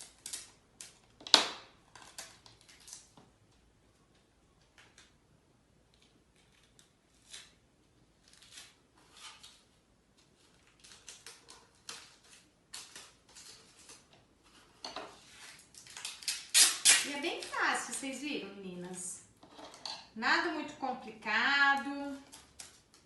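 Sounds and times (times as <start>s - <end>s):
adhesive tape handling: 15.7s - 17.8s.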